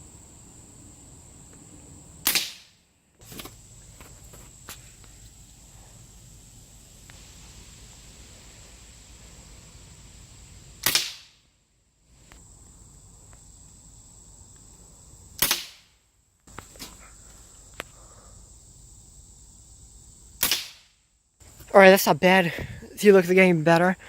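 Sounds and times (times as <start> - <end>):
air rifle shots: 2.2 - 2.8, 10.8 - 11.4, 15.4 - 15.9, 20.4 - 21.0.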